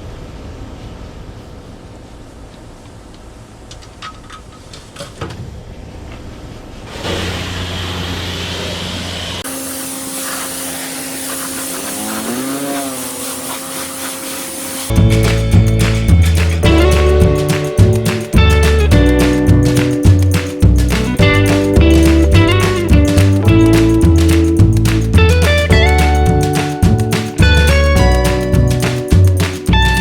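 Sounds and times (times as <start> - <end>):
high-pressure water spraying: 7.0 - 30.0
pressure washer motor hum: 7.1 - 30.0.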